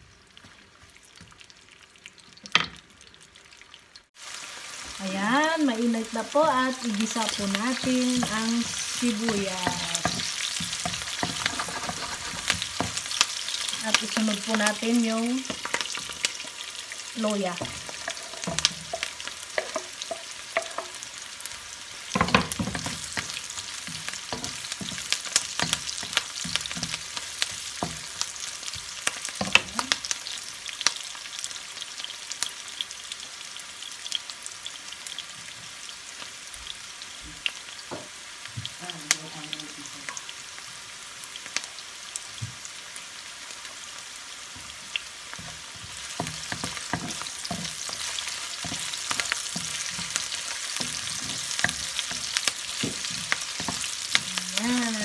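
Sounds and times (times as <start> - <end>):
food sizzling in hot oil: 0.0 - 55.0
wooden spatula scraping a wok: 7.0 - 14.7, 17.6 - 21.0, 44.6 - 54.3.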